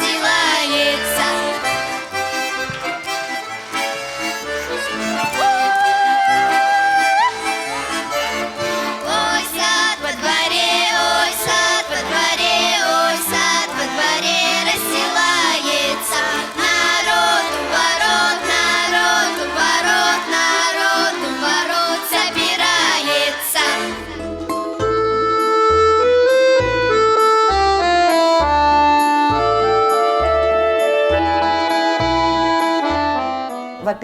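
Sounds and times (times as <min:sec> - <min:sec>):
accordion playing folk tune: 0:00.0 - 0:34.0.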